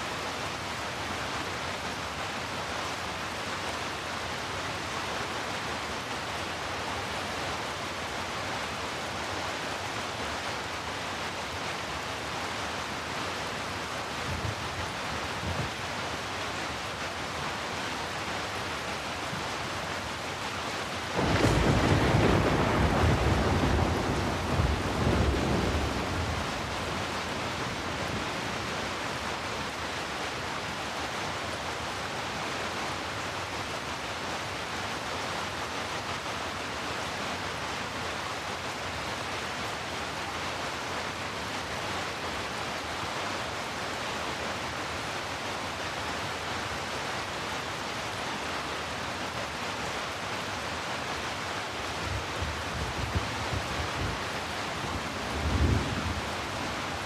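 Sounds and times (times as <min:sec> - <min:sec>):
steady rain: 0:00.0 - 0:57.0
thunder clap rolling: 0:21.2 - 0:28.2.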